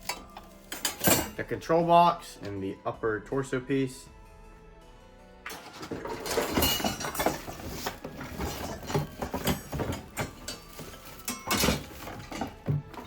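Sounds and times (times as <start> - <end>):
plastic packaging rustling: 0.0 - 1.4, 5.7 - 13.0
plastic pieces knocking: 6.0 - 13.0.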